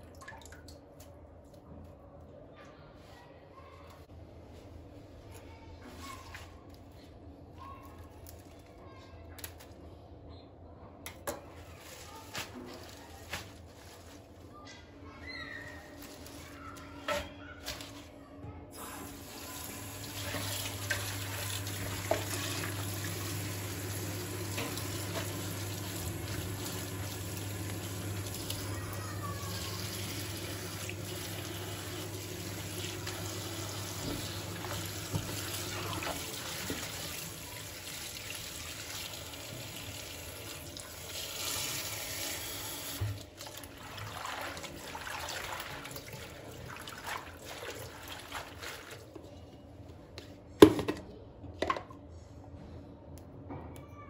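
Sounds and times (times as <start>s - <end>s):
tap running into sink: 32.4s - 37.0s.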